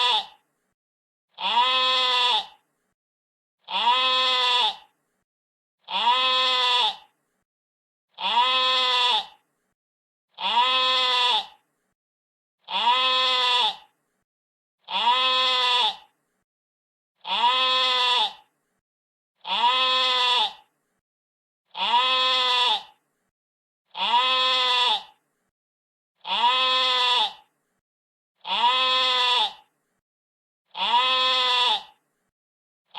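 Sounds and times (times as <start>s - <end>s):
sheep bleating: 0.0s - 0.4s, 1.4s - 2.6s, 3.7s - 4.9s, 5.9s - 7.1s, 8.2s - 9.4s, 10.4s - 11.6s, 12.7s - 13.9s, 14.9s - 16.1s, 17.2s - 18.4s, 19.4s - 20.6s, 21.7s - 23.0s, 23.9s - 25.2s, 26.2s - 27.5s, 28.4s - 29.7s, 30.7s - 32.0s.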